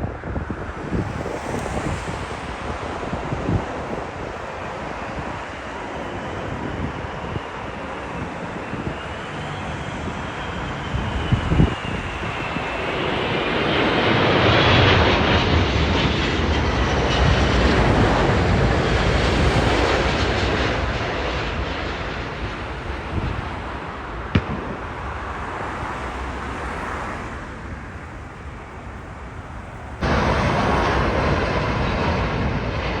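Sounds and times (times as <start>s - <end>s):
jet engines roaring overhead: 0.0s - 33.0s
loud steady rumble: 27.3s - 33.0s.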